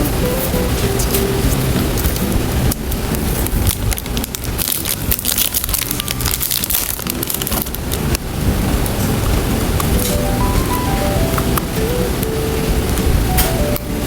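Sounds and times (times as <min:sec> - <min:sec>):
plastic packaging crinkling: 0:02.0 - 0:08.2.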